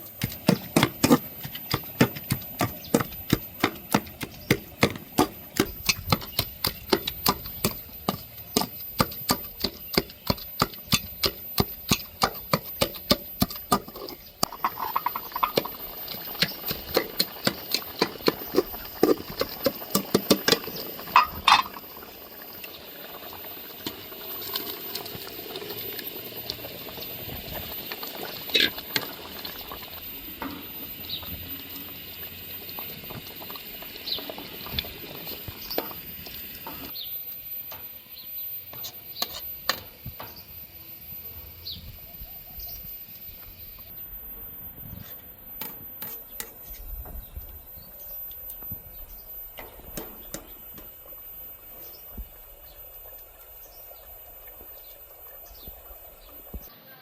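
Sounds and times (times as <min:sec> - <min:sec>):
clinks: 0:13.8 - 0:18.7.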